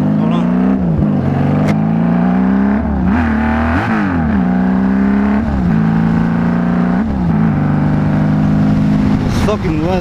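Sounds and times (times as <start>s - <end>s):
motorcycle engine running: 4.1s - 10.0s.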